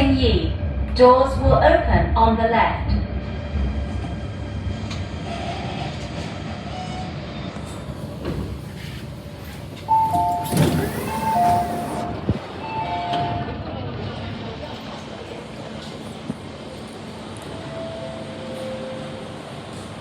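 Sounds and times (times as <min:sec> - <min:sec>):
train rumbling and slowing: 0:00.0 - 0:20.0
sliding doors opening: 0:07.5 - 0:13.5
two-tone door chime: 0:09.9 - 0:13.5.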